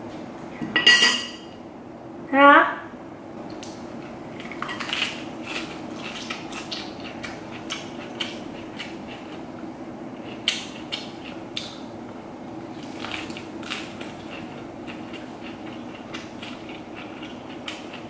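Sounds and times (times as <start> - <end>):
steady low hum: 0.0 - 18.0
crunching and chewing lettuce: 3.5 - 9.6, 10.2 - 11.9, 12.5 - 18.0.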